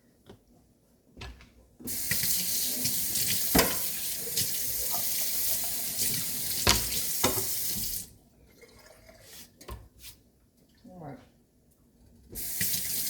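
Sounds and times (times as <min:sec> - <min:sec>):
tap water splashing into sink: 0:01.9 - 0:08.1.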